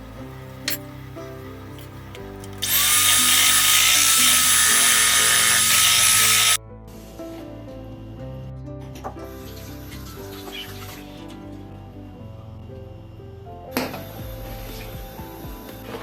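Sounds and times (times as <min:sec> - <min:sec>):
light background music: 0:00.0 - 0:16.0
small electric motor whirring: 0:02.6 - 0:06.6.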